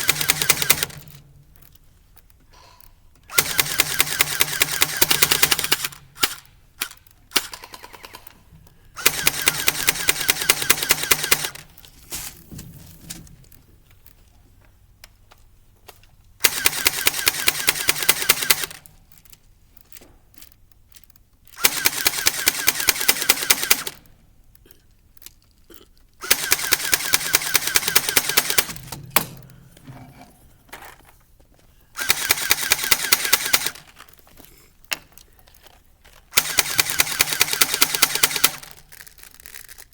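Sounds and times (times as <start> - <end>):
airsoft gun full-auto bursts: 0.0 - 1.2, 3.3 - 8.4, 9.0 - 11.7, 16.4 - 18.9, 21.5 - 24.1, 26.2 - 29.5, 32.0 - 34.0, 36.3 - 39.8.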